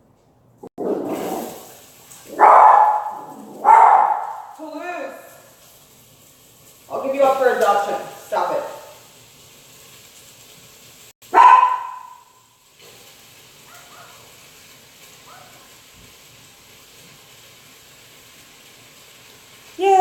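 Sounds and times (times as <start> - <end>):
dog barking: 2.3 - 4.6, 11.3 - 12.4, 13.7 - 14.3, 15.2 - 15.7
dog yipping: 2.4 - 4.6, 11.3 - 12.3, 13.7 - 14.2, 15.3 - 15.7.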